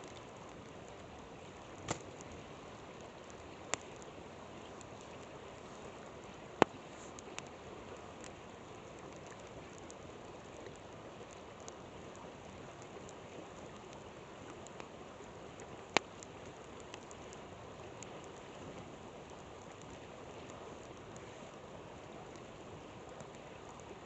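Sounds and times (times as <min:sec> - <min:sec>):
campfire crackling and popping: 0:00.0 - 0:24.0
river flowing: 0:00.0 - 0:24.0.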